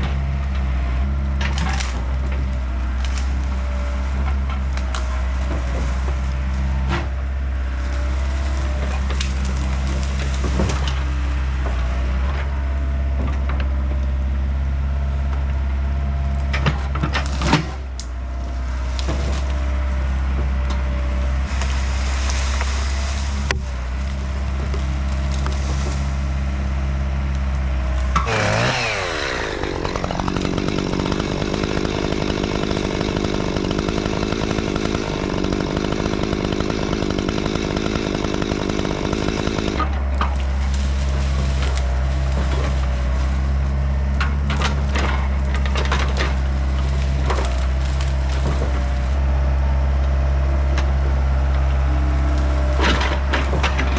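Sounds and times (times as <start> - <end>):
wood cracking and splintering: 0.0 - 14.1, 16.2 - 53.9
excavator diesel engine running: 0.0 - 53.9
high-pitched buzzing motor: 28.2 - 39.9.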